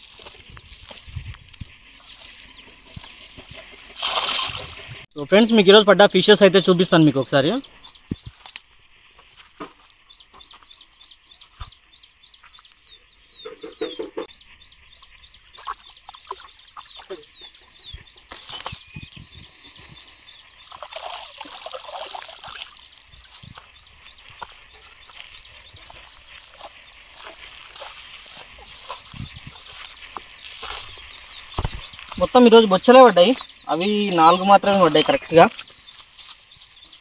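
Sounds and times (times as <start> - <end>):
bird chirping: 2.4 - 9.0, 9.6 - 37.0.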